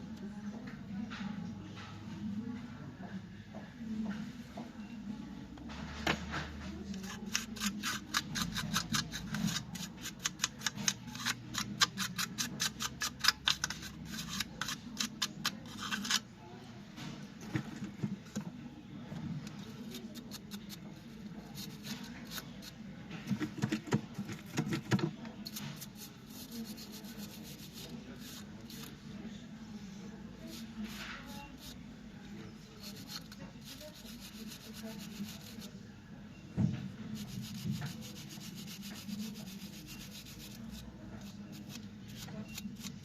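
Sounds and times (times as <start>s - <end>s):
rubbing strokes on laptop: 37.2s - 40.8s.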